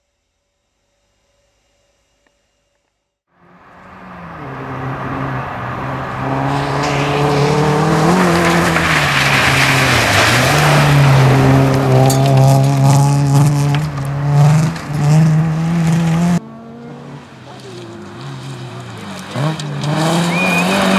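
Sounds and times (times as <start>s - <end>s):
rally car engine at high revs: 3.4s - 20.9s
tyre and gravel noise: 3.6s - 16.4s, 17.1s - 20.9s.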